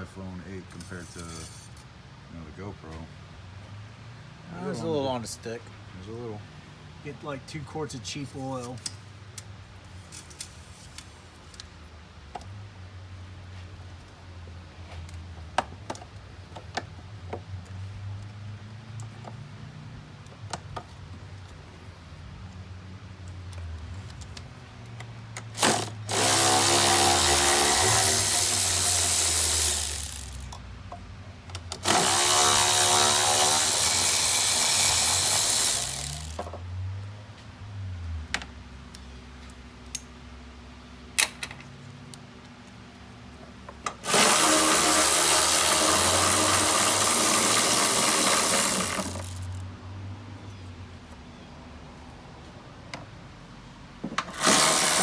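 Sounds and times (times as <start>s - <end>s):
power tool spinning up: 25.6s - 30.5s, 31.8s - 36.5s, 44.0s - 49.6s, 54.2s - 55.0s.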